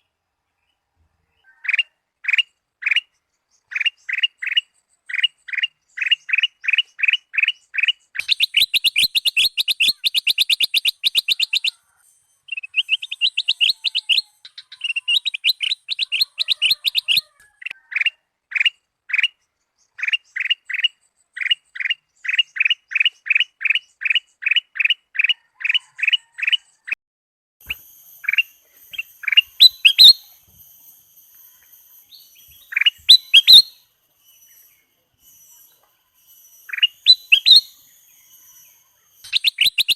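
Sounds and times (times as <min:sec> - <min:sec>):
bulbul singing: 0:01.6 - 0:17.8, 0:27.6 - 0:39.9
faint high steady hiss: 0:27.6 - 0:39.8.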